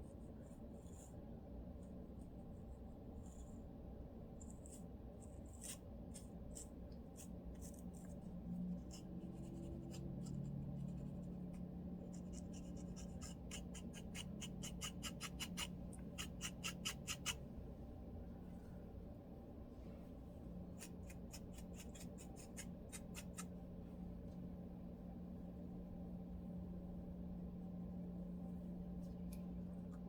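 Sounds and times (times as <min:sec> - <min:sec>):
comb scraping dry scalp: 0:04.4 - 0:17.4, 0:20.8 - 0:23.5.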